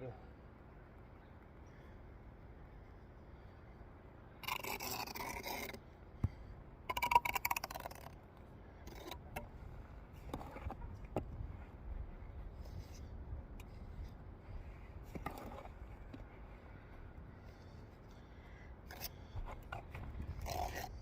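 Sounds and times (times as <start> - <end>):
trowel scraping mortar on brick: 4.4 - 5.8, 18.9 - 21.0.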